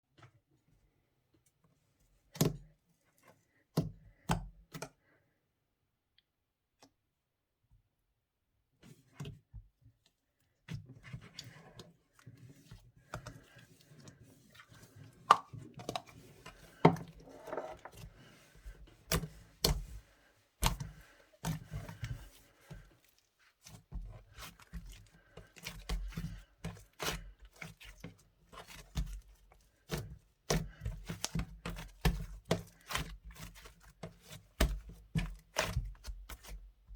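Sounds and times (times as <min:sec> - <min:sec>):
hands squishing slime: 0:20.6 - 0:36.6.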